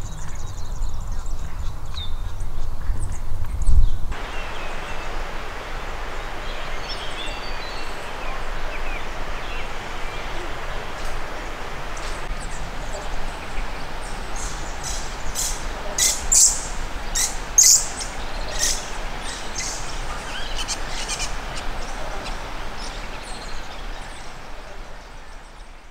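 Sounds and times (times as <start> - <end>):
birds chirping: 0.0 - 25.9
steady background hiss: 0.0 - 25.9.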